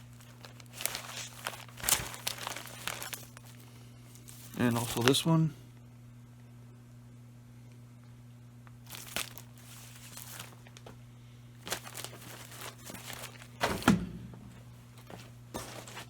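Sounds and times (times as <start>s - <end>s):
packaging crinkling: 0.0s - 5.3s, 8.8s - 11.0s, 11.6s - 16.0s
low electrical hum: 0.0s - 16.0s.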